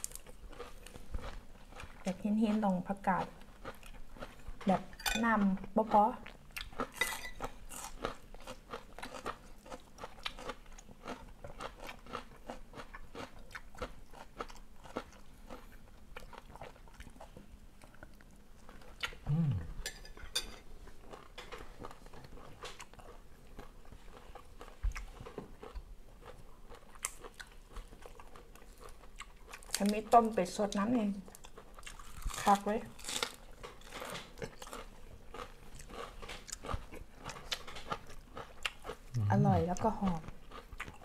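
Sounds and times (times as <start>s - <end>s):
person chewing crunchy food: 0.0s - 30.0s, 31.3s - 41.0s
low voice sound: 19.3s - 19.8s, 39.2s - 39.7s.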